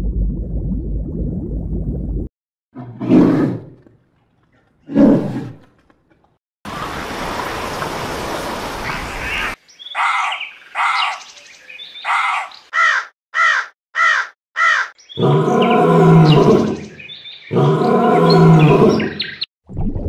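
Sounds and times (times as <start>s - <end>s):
ravens cawing: 10.0s - 11.3s, 12.0s - 16.4s.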